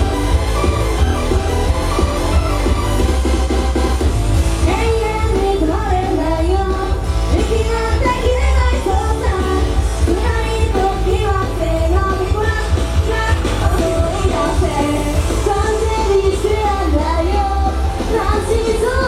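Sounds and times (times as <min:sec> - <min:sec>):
loud pop music with heavy bass: 0:00.0 - 0:19.0
women singing: 0:04.6 - 0:19.0.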